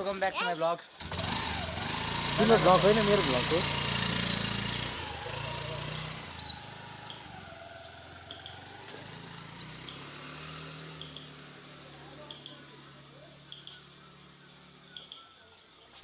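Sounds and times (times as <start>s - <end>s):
vehicle engine pulling away: 0.9s - 15.1s
small birds chirping: 5.0s - 16.0s.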